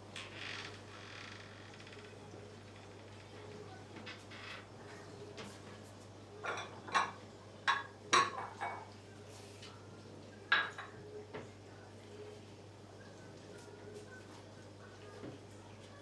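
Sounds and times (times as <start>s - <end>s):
dishes and utensils clinking: 6.4s - 8.9s, 10.5s - 11.0s.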